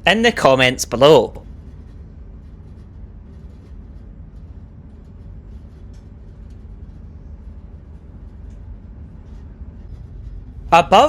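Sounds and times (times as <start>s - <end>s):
train rumble inside carriage: 0.0s - 0.3s, 0.9s - 11.0s.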